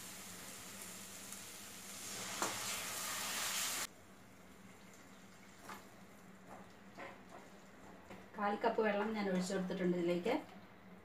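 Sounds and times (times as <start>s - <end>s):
masala sizzling in oil: 0.0s - 7.9s.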